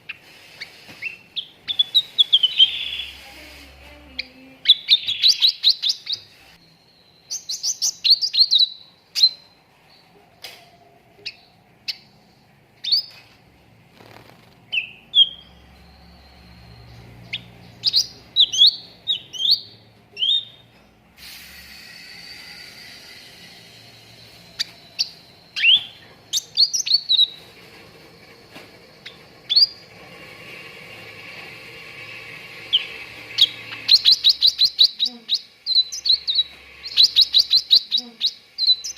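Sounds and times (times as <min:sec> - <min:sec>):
bulbul chirping and whistling: 0:00.0 - 0:03.2, 0:04.2 - 0:09.6, 0:14.7 - 0:20.6, 0:21.6 - 0:27.5, 0:32.2 - 0:38.9.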